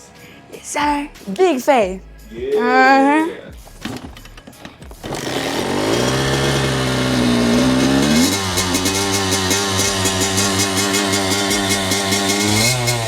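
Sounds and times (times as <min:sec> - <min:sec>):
music with an even beat: 0:00.8 - 0:13.0
dirt bike engine revving: 0:04.8 - 0:13.0.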